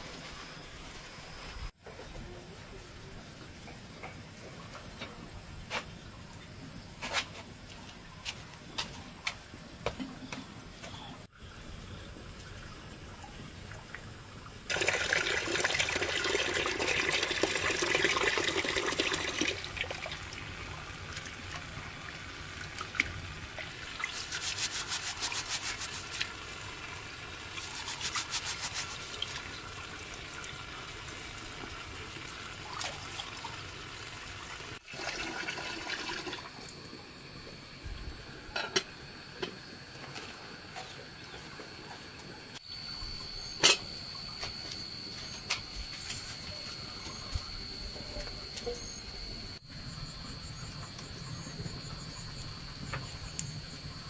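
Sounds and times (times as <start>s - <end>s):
water pouring: 14.7s - 21.6s, 22.6s - 36.7s
rapid scraping strokes: 24.1s - 26.2s, 27.6s - 29.1s.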